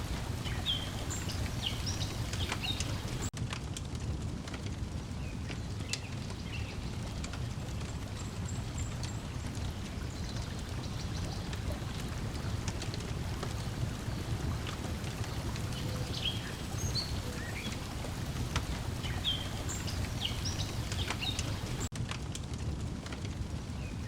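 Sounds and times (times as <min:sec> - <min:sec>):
birds chirping: 0:00.0 - 0:03.3, 0:05.6 - 0:21.9
water lapping: 0:00.0 - 0:03.3, 0:07.0 - 0:21.9
wood fire crackling: 0:00.0 - 0:24.0.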